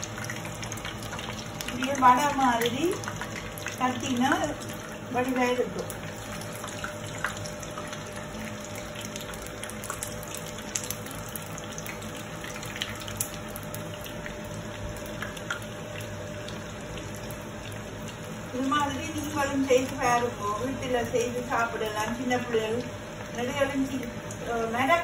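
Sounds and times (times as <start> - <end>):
food deep-frying in oil: 0.0 - 25.0
oil crackles and pops: 0.0 - 25.0.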